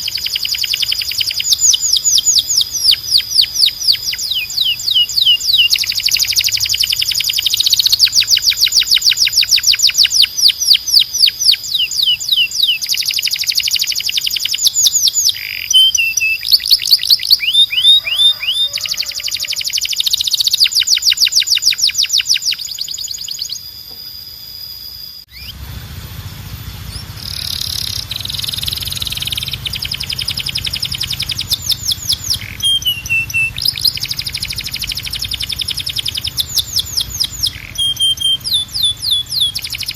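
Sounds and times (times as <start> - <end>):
canary singing in rapid trills: 0.0 - 39.9
steady low hum: 23.1 - 39.9.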